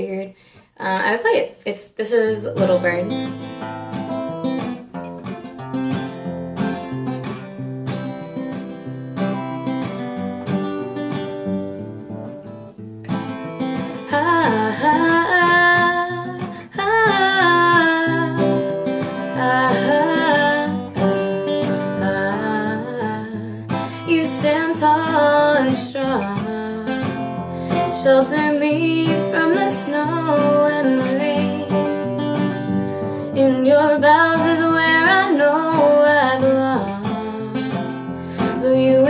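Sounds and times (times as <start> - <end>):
acoustic guitar plucked chords: 2.4 - 39.0
person singing: 14.0 - 32.0, 33.3 - 39.0.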